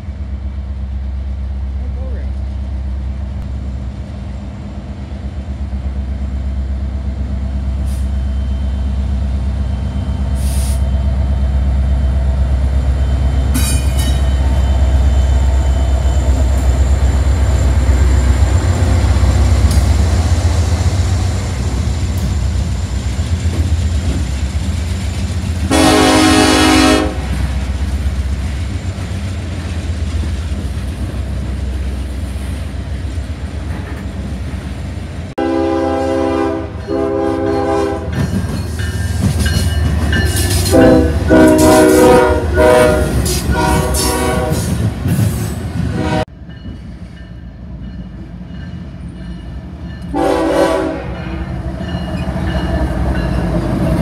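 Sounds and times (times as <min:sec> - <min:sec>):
train wheels rumbling on rails: 0:00.0 - 0:54.0
locomotive air horn blasts: 0:25.7 - 0:27.4, 0:35.4 - 0:38.2, 0:40.7 - 0:44.7, 0:45.9 - 0:46.3, 0:50.1 - 0:51.5.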